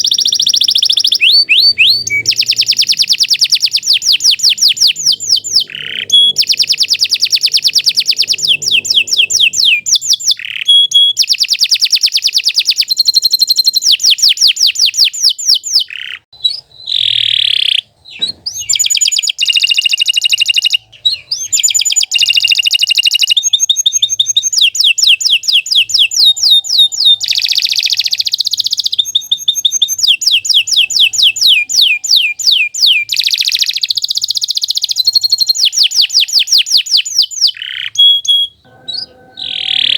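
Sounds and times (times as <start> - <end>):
canary singing fast trills: 0.0 - 39.9.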